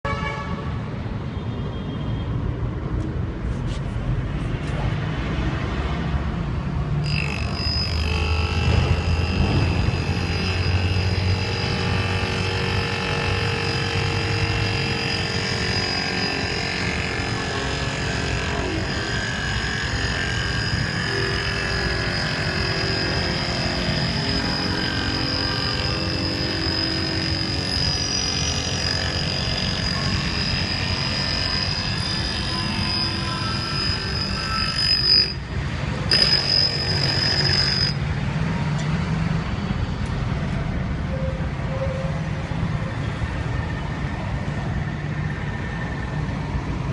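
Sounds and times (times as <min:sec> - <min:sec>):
grinder whining: 0:07.0 - 0:39.0
machine hum: 0:07.0 - 0:40.2.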